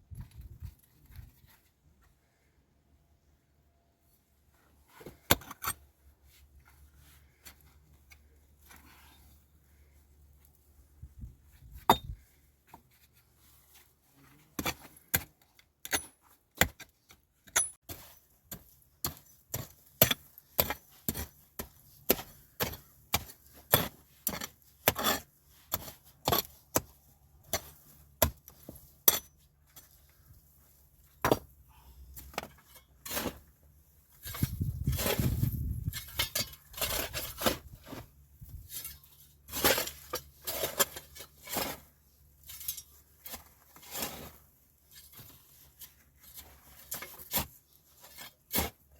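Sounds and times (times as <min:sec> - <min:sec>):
rustling scrape: 0:32.6 - 0:48.9.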